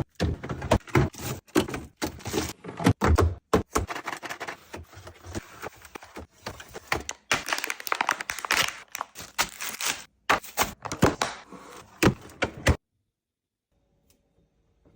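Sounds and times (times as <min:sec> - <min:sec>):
plastic containers clicking and knocking: 0:05.9 - 0:09.6
packaging crinkling and rustling: 0:06.6 - 0:11.3.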